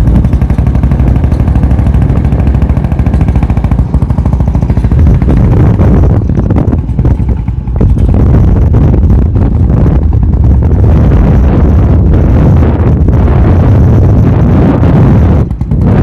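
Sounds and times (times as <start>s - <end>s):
motorcycle engine firing: 0.0s - 16.0s.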